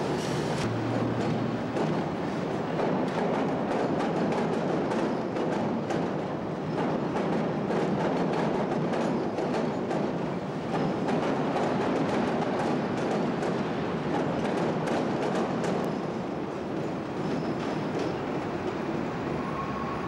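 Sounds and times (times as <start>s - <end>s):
train wheels rumbling: 0.0s - 20.0s
wheels clacking over rail joints: 0.1s - 15.9s.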